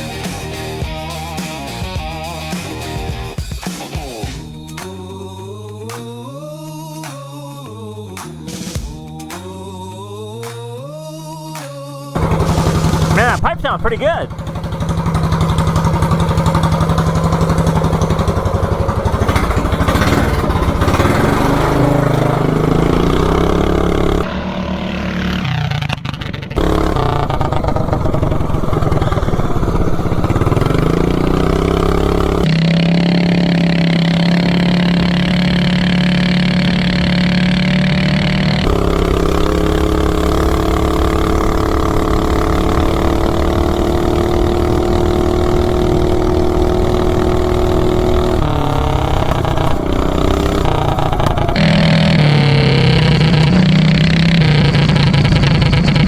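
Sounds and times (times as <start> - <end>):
minibike engine revving: 12.2 - 56.0.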